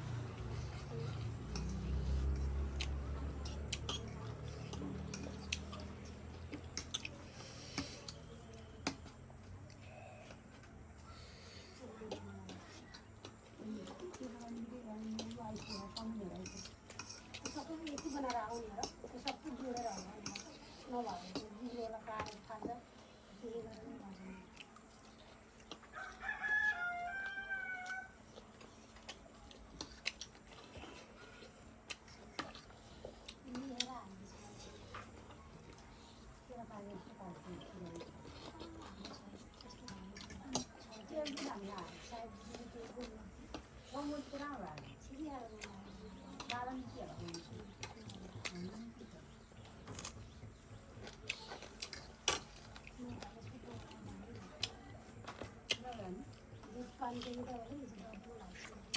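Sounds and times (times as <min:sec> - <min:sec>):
close eating clicks and smacks: 0:00.0 - 0:58.9
rooster crowing: 0:25.9 - 0:28.2.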